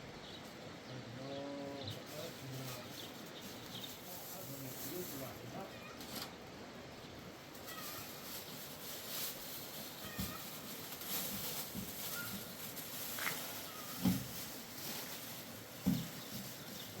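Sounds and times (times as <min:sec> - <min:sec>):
steady hiss: 0:00.0 - 0:17.0
animal crying faintly: 0:07.6 - 0:08.4, 0:10.0 - 0:10.9, 0:12.0 - 0:12.5, 0:13.3 - 0:14.1.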